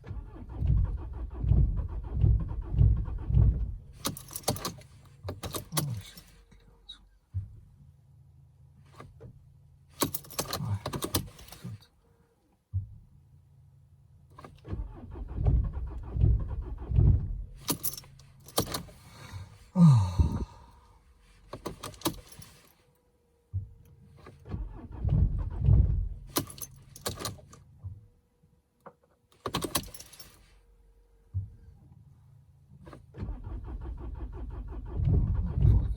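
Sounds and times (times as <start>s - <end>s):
diesel engine cranking by starter: 0.0s - 6.4s, 9.9s - 11.8s, 14.3s - 22.8s, 23.5s - 27.9s, 29.4s - 30.5s, 32.7s - 35.9s.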